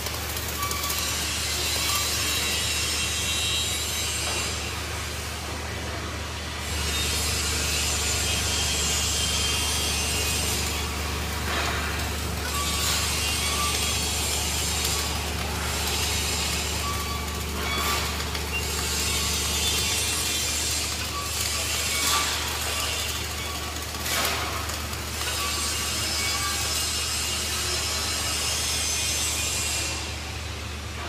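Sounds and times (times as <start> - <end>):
low machinery hum: 4.6 - 25.3.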